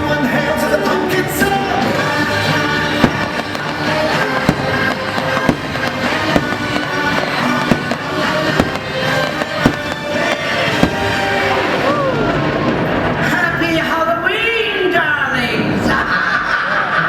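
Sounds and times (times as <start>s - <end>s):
loud orchestral music: 1.3s - 12.6s
fireworks bursting with sharp bangs: 1.4s - 13.3s.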